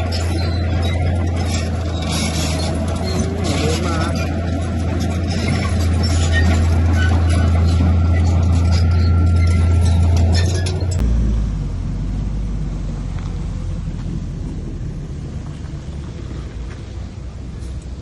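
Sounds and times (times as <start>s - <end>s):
heavy diesel engine droning: 0.0s - 18.0s.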